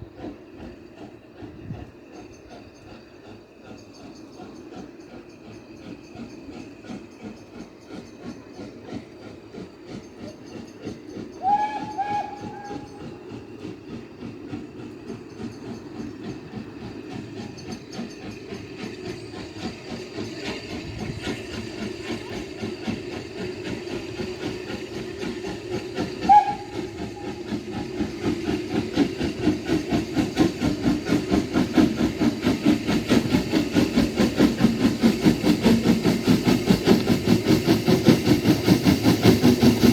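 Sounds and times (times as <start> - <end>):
steam locomotive exhaust beats: 0.0 - 39.9
steam locomotive whistle: 11.4 - 13.5, 25.5 - 28.0.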